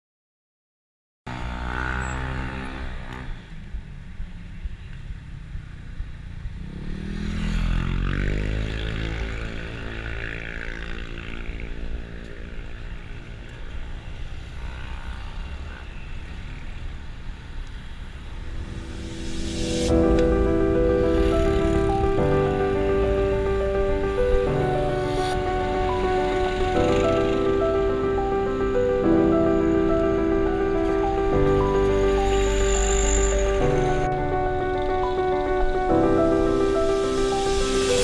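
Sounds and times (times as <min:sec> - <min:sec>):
low wind rumble: 0:17.4 - 0:38.0.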